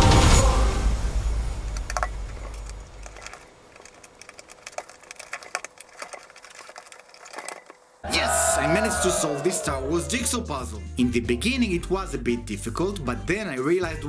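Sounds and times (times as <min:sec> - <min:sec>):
puzzle pieces clicking: 0:01.8 - 0:07.8.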